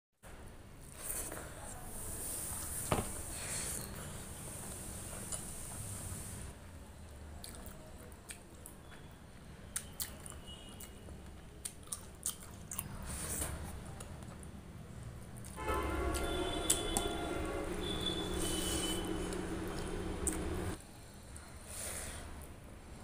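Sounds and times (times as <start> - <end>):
wet chewing and squishing: 7.4 - 9.0, 9.7 - 11.0, 11.6 - 14.5, 19.3 - 20.5.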